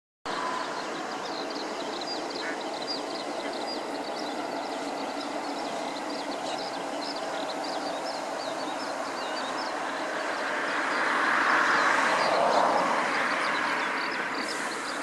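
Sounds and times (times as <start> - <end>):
steady rushing background noise: 0.3 - 15.0
ducklings peeping: 1.2 - 9.7.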